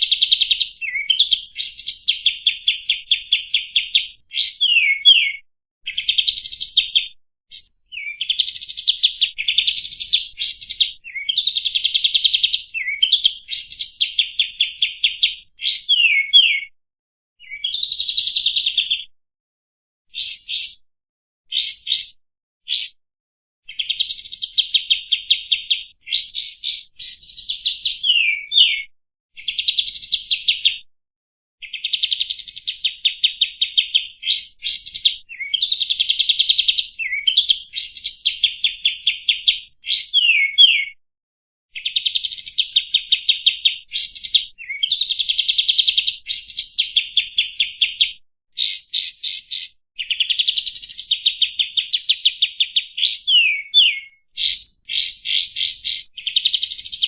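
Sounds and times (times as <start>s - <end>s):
bulbul singing: 0.0s - 16.7s, 20.2s - 20.8s, 21.5s - 23.0s, 23.7s - 28.8s, 48.6s - 51.7s, 52.8s - 57.0s.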